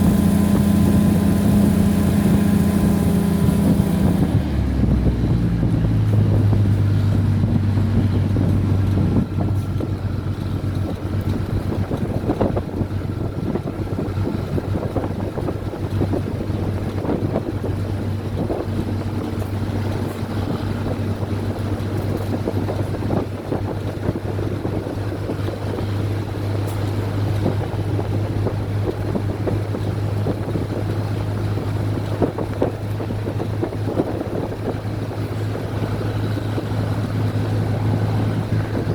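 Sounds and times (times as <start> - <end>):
train running: 0.0 - 38.9.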